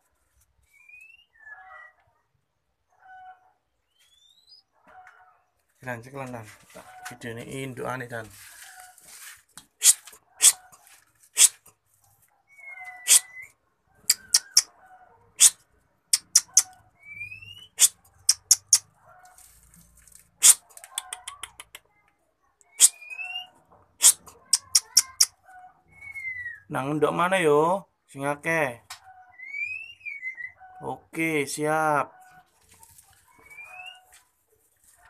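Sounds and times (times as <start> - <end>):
birds clicking calls: 9.8 - 10.8, 12.5 - 19.4, 20.3 - 21.9, 22.7 - 26.5, 33.2 - 34.1
short rising bird whistles: 12.5 - 14.6, 22.7 - 23.5, 26.0 - 26.7.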